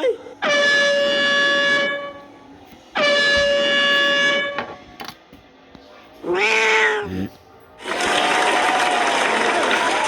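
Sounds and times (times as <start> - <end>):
air horn blast: 0.4 - 2.3, 3.0 - 4.6.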